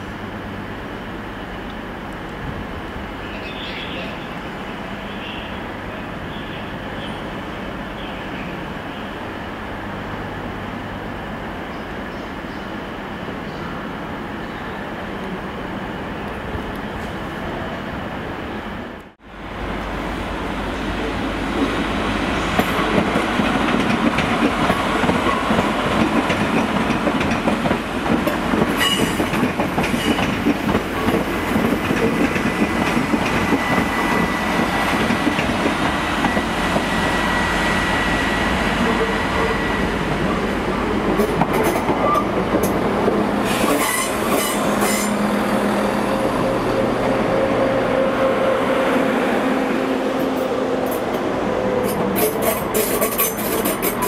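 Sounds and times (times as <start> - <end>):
train wheels rumbling on rails: 19.9 - 54.0.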